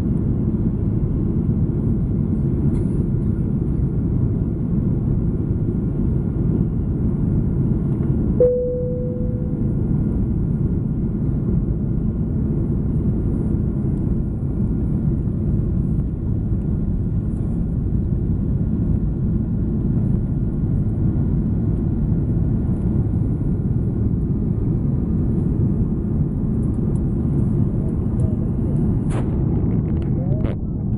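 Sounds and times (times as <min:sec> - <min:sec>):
airliner engine rumble in cabin: 0:00.0 - 0:30.9
cabin chime: 0:08.4 - 0:09.5.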